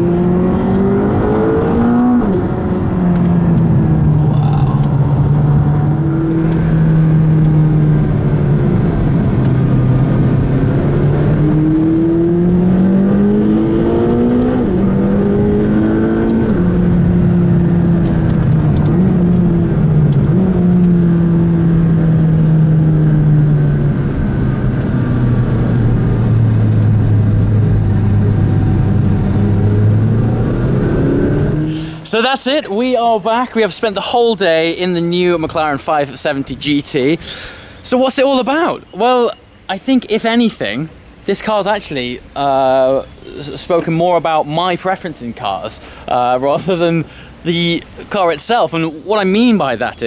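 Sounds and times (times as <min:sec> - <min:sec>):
car engine revving and shifting: 0:00.0 - 0:32.0
road noise: 0:00.0 - 0:50.0.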